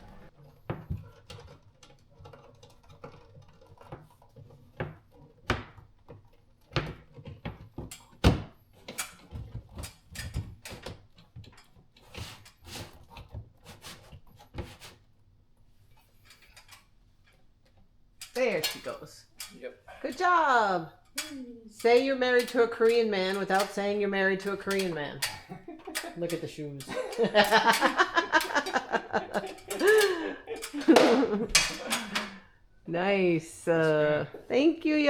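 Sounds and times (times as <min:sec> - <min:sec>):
light fixture clicks and knocks: 0:21.1 - 0:32.4.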